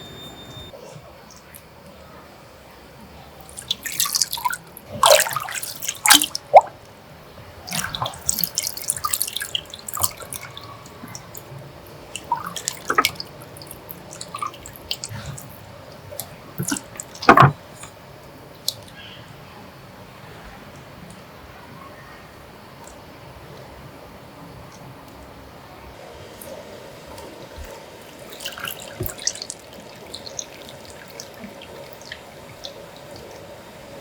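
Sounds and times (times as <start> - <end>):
water splashing and dripping: 3.4 - 6.8, 7.6 - 17.8, 27.2 - 34.0.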